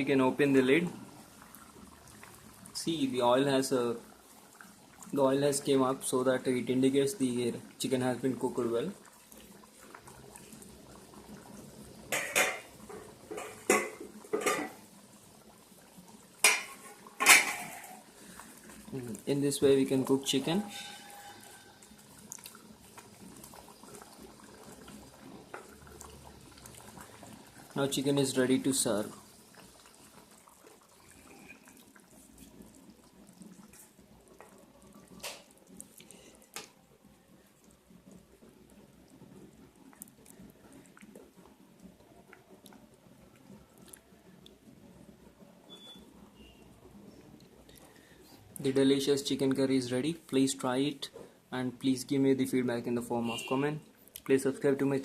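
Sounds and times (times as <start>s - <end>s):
curry simmering in a pan: 0.0s - 55.0s
metal spoon scraping a pot: 16.4s - 18.0s, 20.4s - 21.8s.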